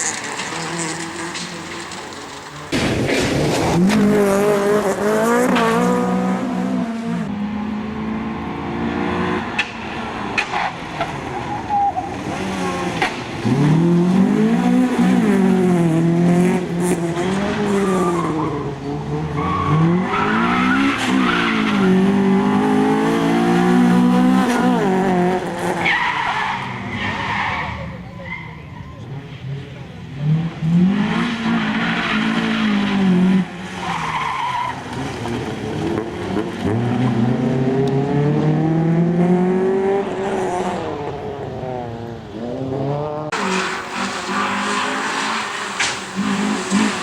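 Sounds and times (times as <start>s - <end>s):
rally car engine revving: 0.0s - 28.4s, 29.3s - 47.0s.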